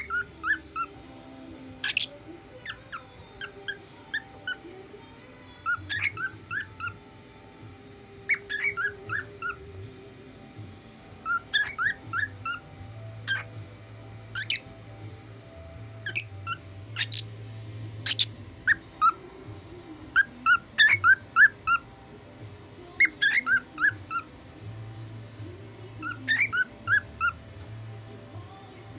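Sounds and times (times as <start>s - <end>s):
cockatiel whistling chirps: 0.0s - 0.9s, 5.6s - 7.0s, 8.3s - 9.6s, 11.2s - 12.6s, 13.2s - 13.5s, 14.3s - 14.7s, 16.0s - 17.3s, 18.0s - 19.2s, 20.2s - 21.8s, 23.0s - 24.3s, 26.0s - 27.4s.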